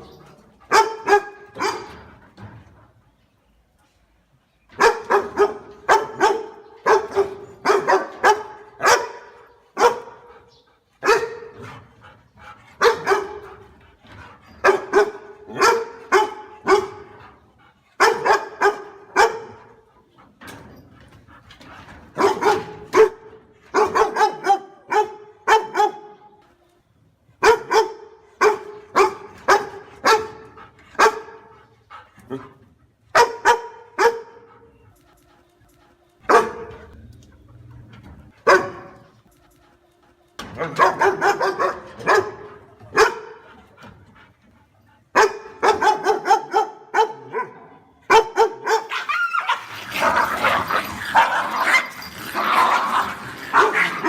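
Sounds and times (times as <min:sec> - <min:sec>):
dog barking: 0:00.7 - 0:02.0, 0:04.8 - 0:10.3, 0:11.0 - 0:11.5, 0:12.8 - 0:13.5, 0:14.6 - 0:17.2, 0:18.0 - 0:19.7, 0:22.2 - 0:26.2, 0:27.4 - 0:30.4, 0:31.0 - 0:31.5, 0:33.1 - 0:34.5, 0:36.3 - 0:36.7, 0:38.4 - 0:39.1, 0:40.6 - 0:43.5, 0:45.2 - 0:51.9.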